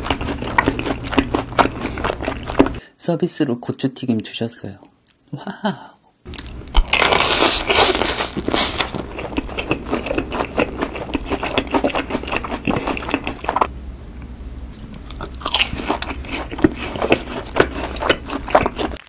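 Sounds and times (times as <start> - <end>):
loud crunchy chewing: 0.0 - 2.8, 6.3 - 13.7, 14.8 - 19.0
crisp bite into fried food: 6.4 - 9.0.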